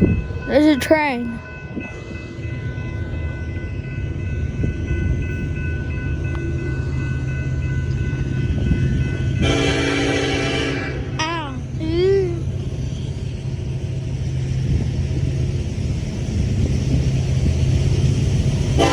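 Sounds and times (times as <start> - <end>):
train rumbling past: 0.0 - 18.9
train horn: 9.4 - 11.2.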